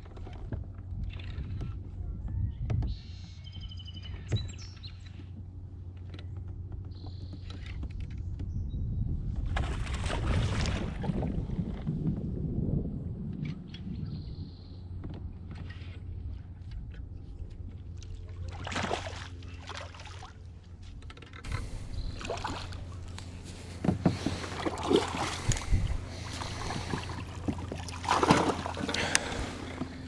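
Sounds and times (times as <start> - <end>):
small water splashes: 9.5 - 11.2, 18.0 - 20.6, 21.5 - 30.0
steady low hum: 12.2 - 30.0.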